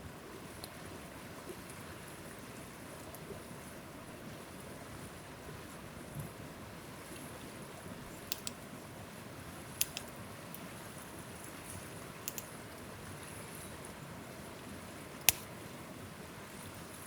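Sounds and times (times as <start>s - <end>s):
sharp snaps: 8.2s - 8.6s, 9.8s - 10.6s, 12.3s - 12.6s, 15.2s - 15.5s.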